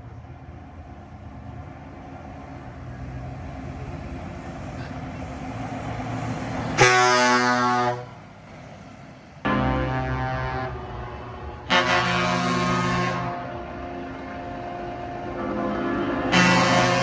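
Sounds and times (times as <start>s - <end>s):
truck air horn blast: 6.8s - 8.2s, 9.5s - 17.0s.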